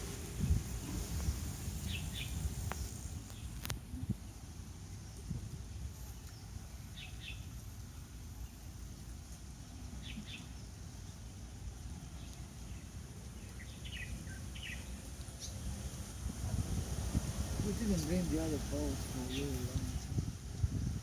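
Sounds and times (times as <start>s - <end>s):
wind on microphone: 0.0s - 7.4s, 14.6s - 21.0s
bird chirping: 5.9s - 8.8s, 9.8s - 11.2s, 12.1s - 15.6s.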